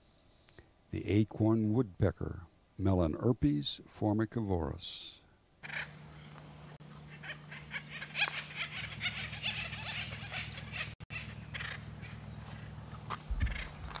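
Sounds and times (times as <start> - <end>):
steady low hum: 0.0 - 14.0
woodpeckers calling: 5.6 - 14.0.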